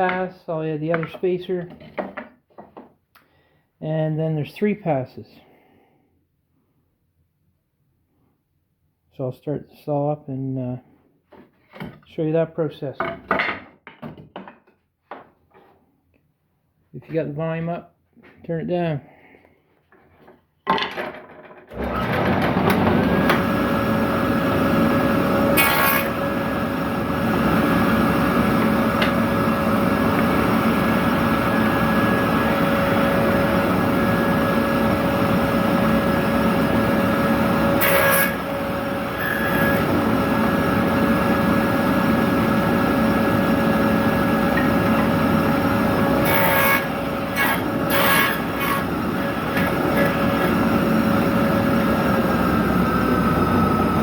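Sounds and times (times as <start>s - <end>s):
electric saw whining: 21.7s - 54.0s
saw blade cutting wood: 24.8s - 41.2s, 43.2s - 51.4s.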